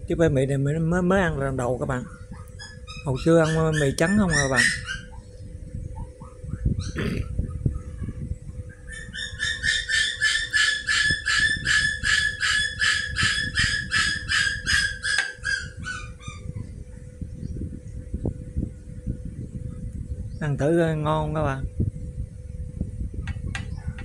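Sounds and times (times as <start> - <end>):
bird calling in harsh notes: 1.5 - 21.0.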